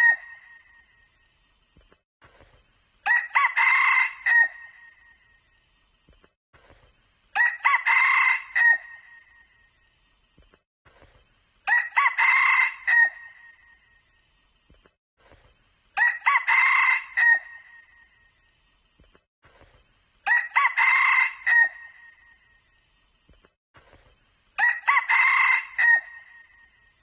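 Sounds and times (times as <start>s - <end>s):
rooster crowing: 3.1s - 4.7s, 7.4s - 9.0s, 11.7s - 13.3s, 16.0s - 17.7s, 20.3s - 22.0s, 24.6s - 26.5s.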